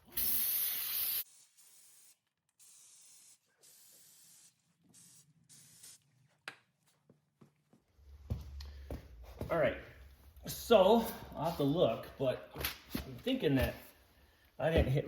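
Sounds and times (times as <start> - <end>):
aerosol spray hissing: 0.0 - 6.0.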